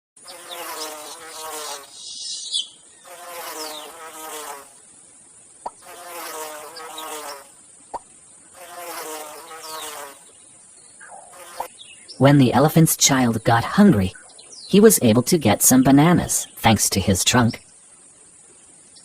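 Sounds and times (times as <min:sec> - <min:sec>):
insect buzzing: 0:00.2 - 0:12.1.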